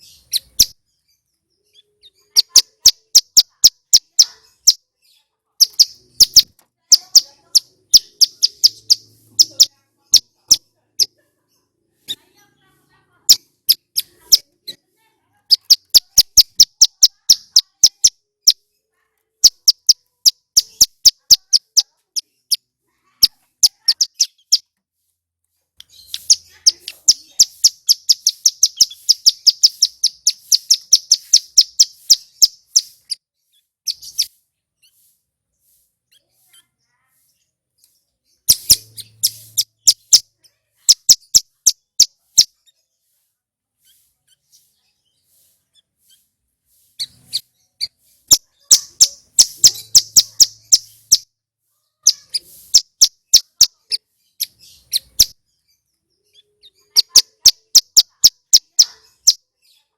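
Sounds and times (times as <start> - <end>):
bird singing high chirps: 0.0 - 12.3, 15.5 - 18.8, 19.4 - 24.7, 25.8 - 43.1, 43.8 - 51.3, 52.0 - 59.9.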